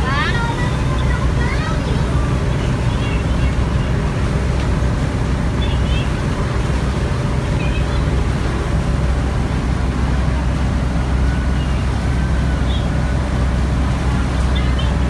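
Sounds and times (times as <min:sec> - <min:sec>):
boat engine rumble: 0:00.0 - 0:15.0
water wash noise: 0:00.0 - 0:15.0.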